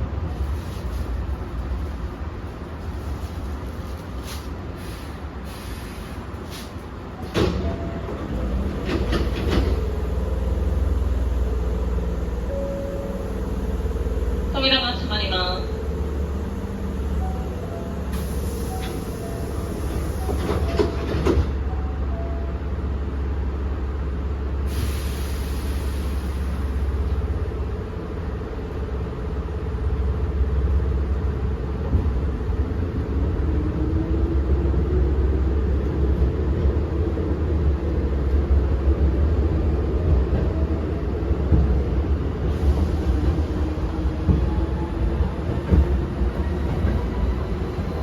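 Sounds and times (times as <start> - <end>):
train running rumble: 0.0 - 48.0
air hiss: 24.7 - 26.7.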